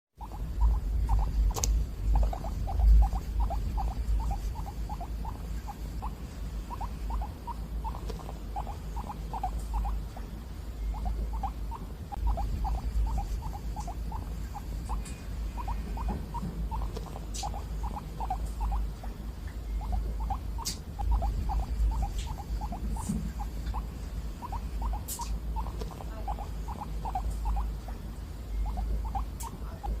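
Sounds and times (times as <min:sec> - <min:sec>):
guinea pig squeaking: 0:00.2 - 0:30.0
low rumble: 0:00.4 - 0:17.0
sharp clicks: 0:01.5 - 0:01.9.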